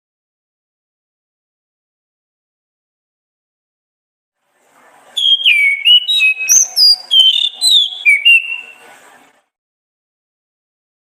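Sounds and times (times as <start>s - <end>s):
thrush singing whistled notes: 5.2s - 8.8s.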